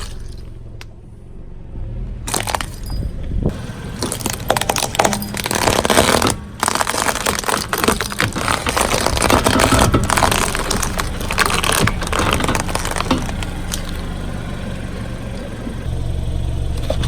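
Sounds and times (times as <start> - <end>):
tyre crushing something crunchy: 0.0 - 0.6, 2.3 - 14.1
low rumble of car: 0.0 - 17.0.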